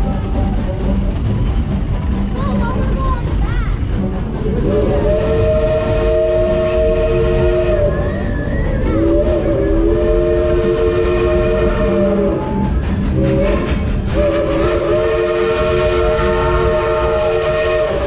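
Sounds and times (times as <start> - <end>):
low rumble of moving train: 0.0 - 18.0
chime steam whistle blasts: 4.6 - 18.0.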